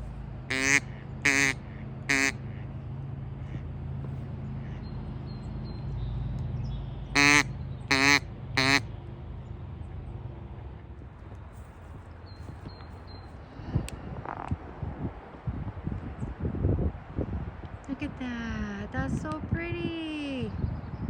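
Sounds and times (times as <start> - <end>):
duck quacks: 0.0 - 2.6, 7.2 - 8.8.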